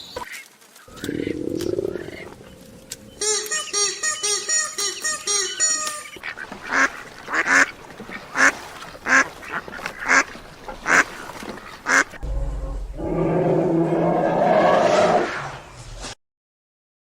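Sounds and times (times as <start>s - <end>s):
duck quacking: 3.2s - 11.2s, 11.8s - 12.2s
low hum: 12.2s - 14.4s.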